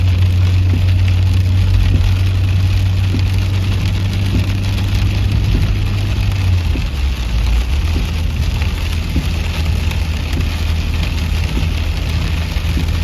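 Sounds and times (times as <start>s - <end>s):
car driving drone: 0.0s - 13.0s
rain on vehicle: 0.0s - 13.0s
faint regular tick: 0.7s - 1.2s, 1.8s - 6.0s, 6.6s - 7.0s, 7.9s - 13.0s.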